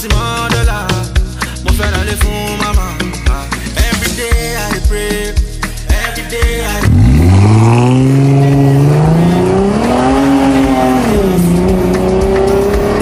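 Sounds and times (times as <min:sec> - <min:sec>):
car engine revving: 0:06.8 - 0:13.0.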